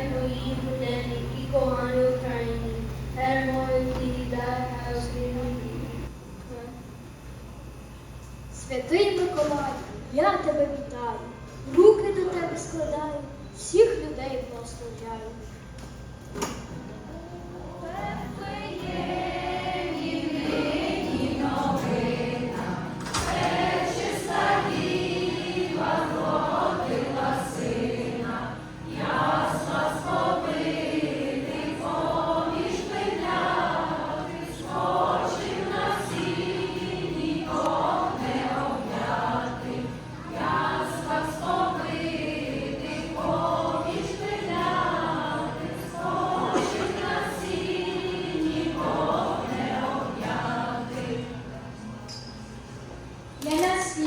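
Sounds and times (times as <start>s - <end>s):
choir singing: 17.7s - 51.9s.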